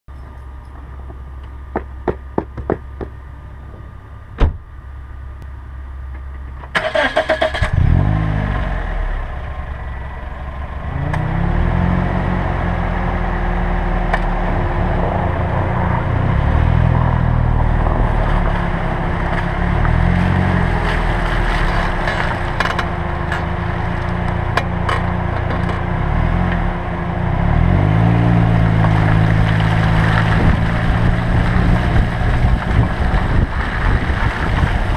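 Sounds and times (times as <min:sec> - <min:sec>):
car engine cranking and starting: 0:06.0 - 0:11.8
car engine revving while driving: 0:06.8 - 0:09.4, 0:10.7 - 0:34.9.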